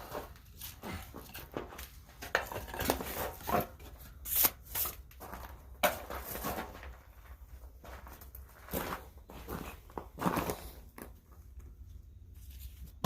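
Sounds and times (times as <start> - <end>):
tools and metal clattering: 0.2 - 4.0.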